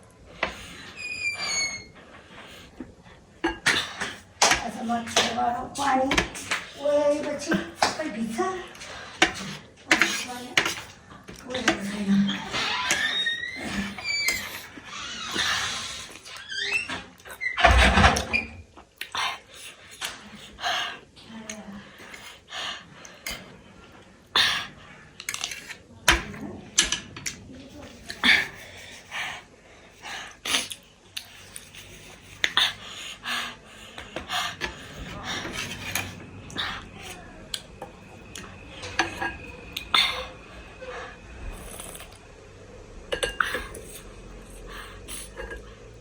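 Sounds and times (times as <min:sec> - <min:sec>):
chewing: 0:30.4 - 0:32.9, 0:41.5 - 0:42.3.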